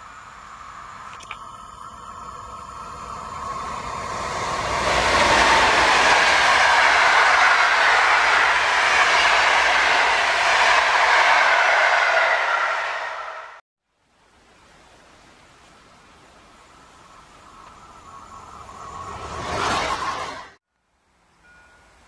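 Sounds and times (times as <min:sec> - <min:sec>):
train rushing past: 0:00.0 - 0:13.6, 0:17.4 - 0:20.6.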